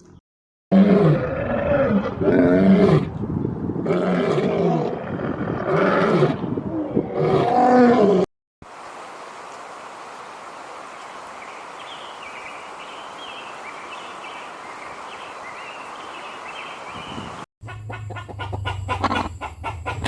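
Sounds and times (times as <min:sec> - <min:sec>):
lion roaring: 0:00.7 - 0:03.1, 0:03.8 - 0:08.3
steady outdoor hiss: 0:08.6 - 0:20.0.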